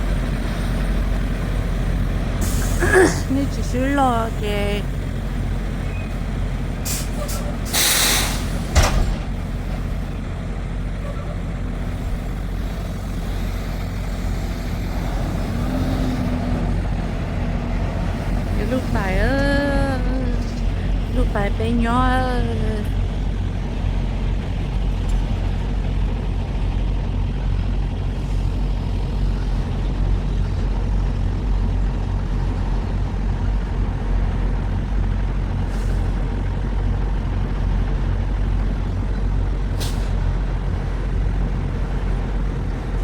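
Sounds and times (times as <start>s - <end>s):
heavy truck engine drone: 0.0s - 43.0s
air brake hisses: 6.8s - 9.0s, 39.8s - 40.2s.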